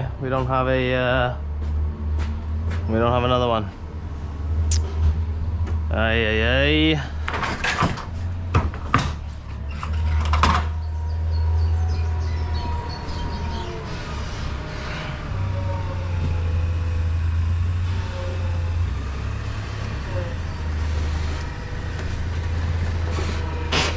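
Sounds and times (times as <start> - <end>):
vehicle engine running: 0.0 - 7.4
sharp knocks and clunks: 7.2 - 10.8.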